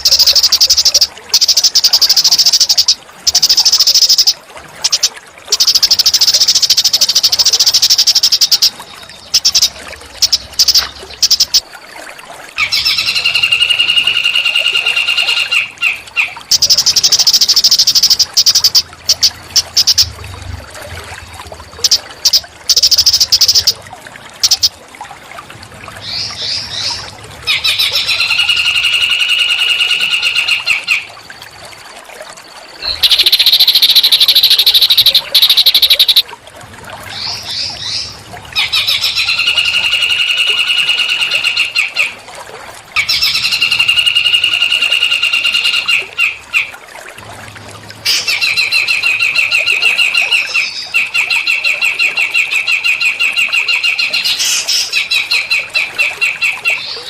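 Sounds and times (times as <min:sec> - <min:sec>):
songbird singing trills: 0:00.0 - 0:11.6, 0:16.5 - 0:20.1, 0:21.7 - 0:23.8, 0:32.8 - 0:36.2.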